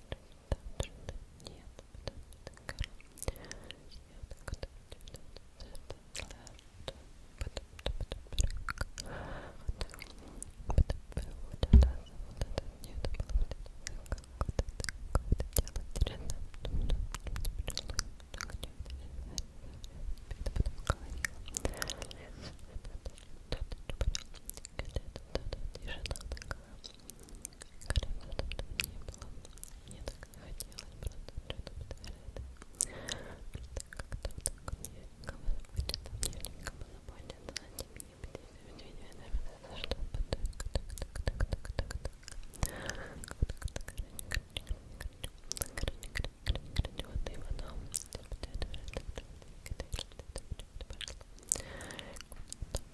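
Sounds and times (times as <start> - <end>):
wet mouth clicks and smacks: 0.1 - 52.9
breathy hiss: 51.5 - 52.3.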